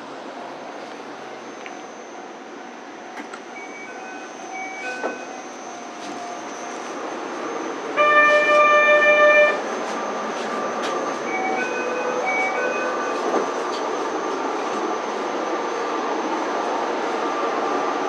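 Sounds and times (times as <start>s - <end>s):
train rumble: 0.0s - 18.0s
train horn blast: 8.0s - 9.6s.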